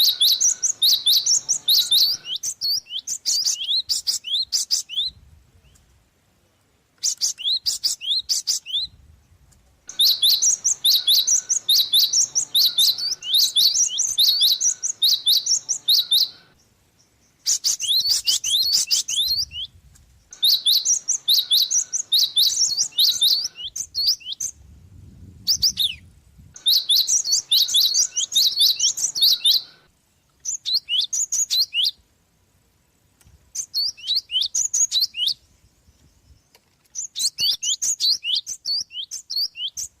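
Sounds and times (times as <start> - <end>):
bird chirping rapidly: 0.0 - 5.2, 7.0 - 9.0, 9.9 - 24.6, 25.4 - 32.0, 33.6 - 35.4.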